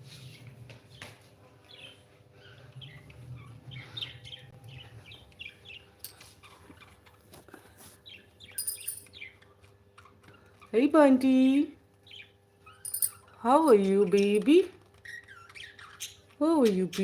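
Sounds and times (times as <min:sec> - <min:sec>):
parrots chirping: 0:01.7 - 0:07.4, 0:08.0 - 0:10.8, 0:12.0 - 0:17.0.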